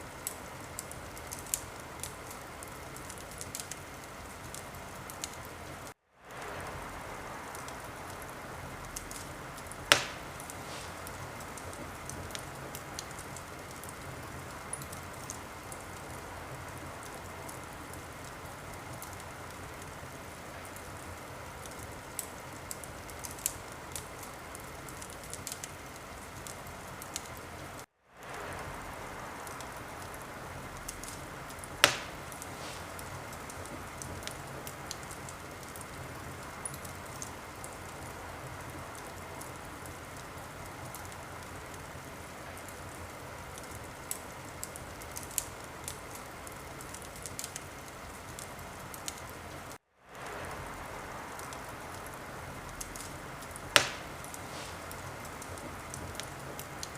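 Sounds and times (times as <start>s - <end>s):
wood fire crackling: 0.0s - 56.9s
loud fire pop: 9.8s - 11.2s, 31.8s - 33.1s, 53.8s - 55.0s.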